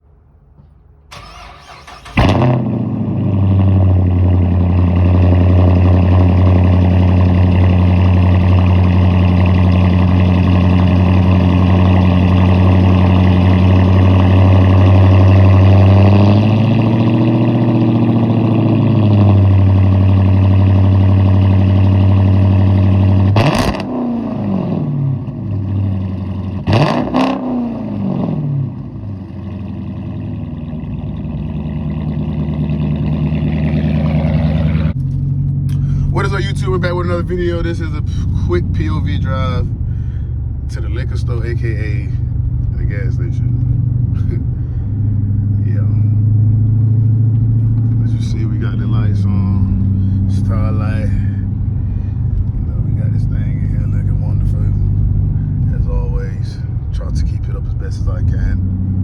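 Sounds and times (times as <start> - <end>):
car engine starting and idling: 0.0 - 59.0.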